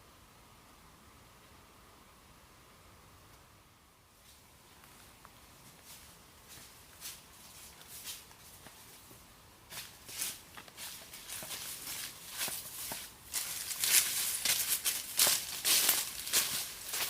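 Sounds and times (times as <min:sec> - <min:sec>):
crunching footsteps: 0:04.2 - 0:17.0.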